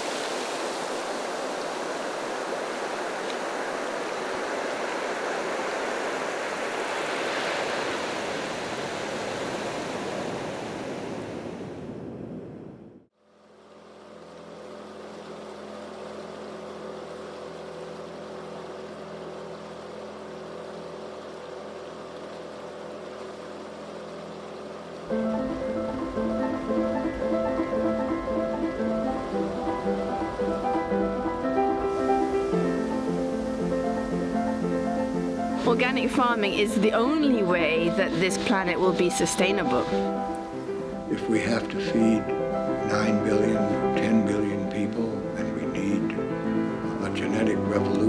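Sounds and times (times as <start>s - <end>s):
drone of held low tones: 13.6s - 48.0s.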